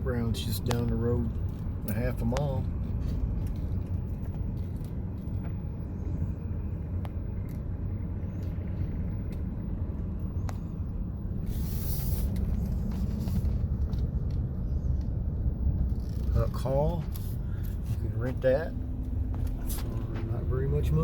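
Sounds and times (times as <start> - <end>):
car engine and tyres rumbling: 0.0 - 21.0
short hiss: 11.5 - 12.4.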